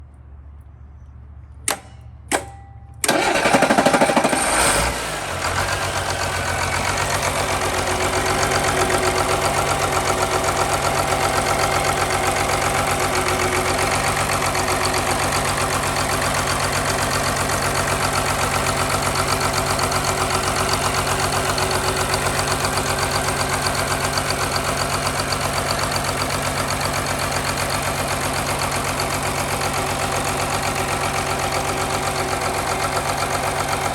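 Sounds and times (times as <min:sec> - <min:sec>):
sharp clicks: 0:01.6 - 0:03.5
diesel engine cranking and idling: 0:01.6 - 0:33.9.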